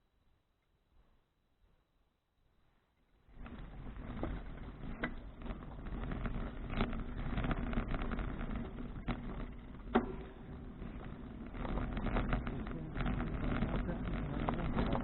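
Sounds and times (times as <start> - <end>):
bicycle tyres rolling: 2.7 - 15.0
bicycle rattles and knocks: 3.2 - 15.0
wind rumbling on microphone: 3.3 - 15.0.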